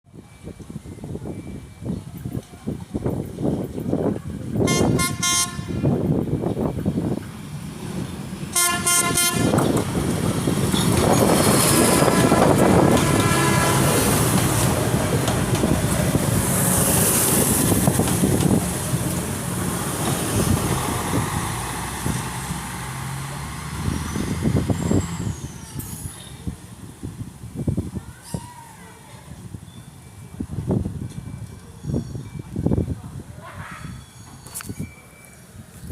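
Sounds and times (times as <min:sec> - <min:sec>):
train passing by: 0:00.1 - 0:35.8
train horn blasts: 0:04.7 - 0:05.9, 0:08.5 - 0:09.6, 0:11.8 - 0:14.2.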